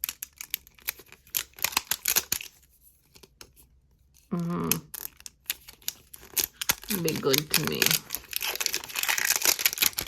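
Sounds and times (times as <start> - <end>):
plastic packaging crinkling: 0.0 - 3.4, 4.8 - 10.0
person humming: 4.3 - 4.9.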